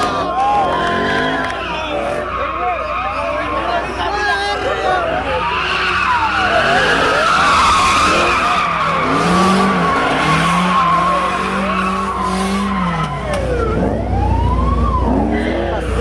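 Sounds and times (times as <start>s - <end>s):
tyres squealing: 0.0s - 13.5s
car engine revving: 4.8s - 16.0s.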